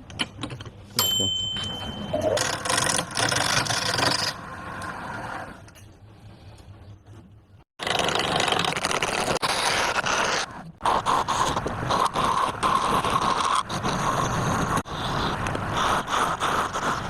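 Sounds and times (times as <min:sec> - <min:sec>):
tool scraping wood: 0:02.2 - 0:04.5, 0:07.8 - 0:17.0.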